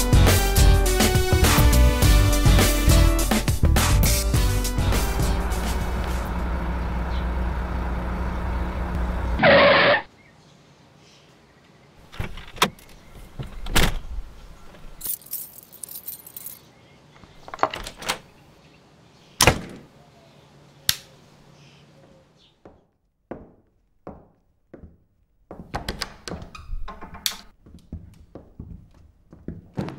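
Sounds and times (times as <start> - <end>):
car engine running: 4.4 - 10.0
door opening and shutting: 12.1 - 14.2, 17.5 - 18.3, 25.8 - 27.5
keys jangling: 15.0 - 16.7.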